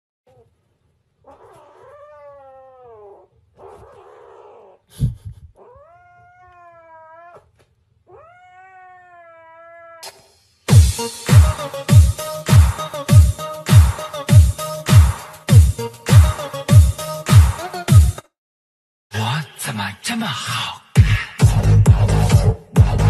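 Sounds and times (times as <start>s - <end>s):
kitten meowing: 1.3s - 4.8s, 5.6s - 7.5s, 8.1s - 10.1s
music with heavy beat: 10.0s - 18.2s, 21.0s - 23.0s.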